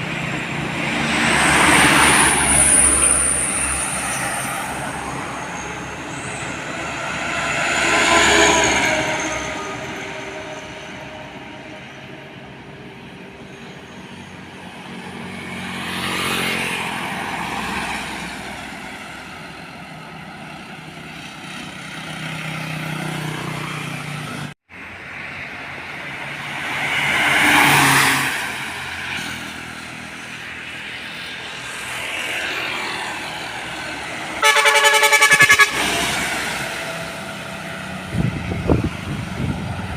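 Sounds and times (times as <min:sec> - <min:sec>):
heavy trucks passing: 0:00.0 - 0:39.9
air horn pulses: 0:34.4 - 0:36.2.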